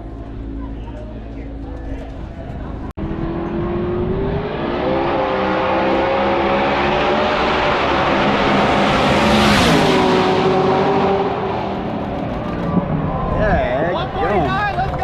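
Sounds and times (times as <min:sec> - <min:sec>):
drag racing car engine accelerating: 0:03.0 - 0:13.4.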